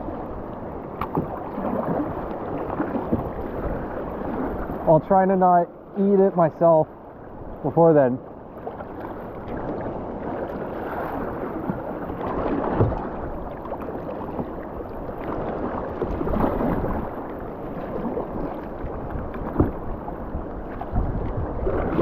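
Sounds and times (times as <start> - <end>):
rushing river water: 0.0 - 22.0
sharp splashes or knocks: 11.7 - 13.2
wind on microphone: 17.8 - 22.0.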